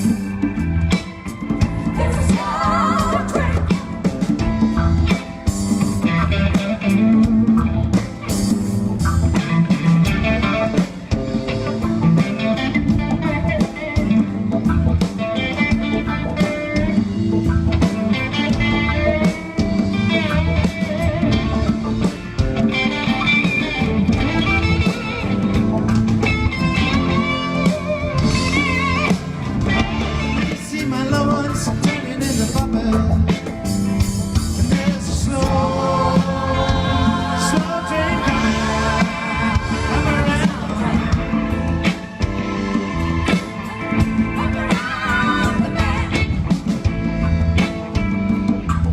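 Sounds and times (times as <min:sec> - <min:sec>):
live reggae band: 0:00.0 - 0:48.9
person singing: 0:34.5 - 0:46.4.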